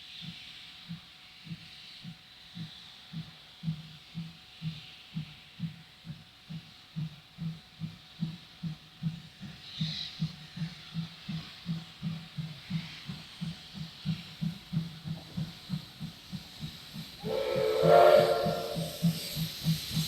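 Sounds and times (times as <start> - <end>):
low rhythmic pulse: 10.2 - 20.0
steam locomotive whistle: 17.2 - 19.5.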